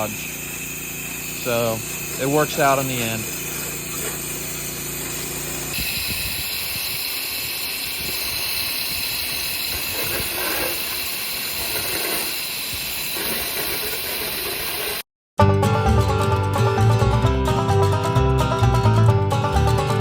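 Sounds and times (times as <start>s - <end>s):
pressure washer spray hissing: 0.0s - 15.0s.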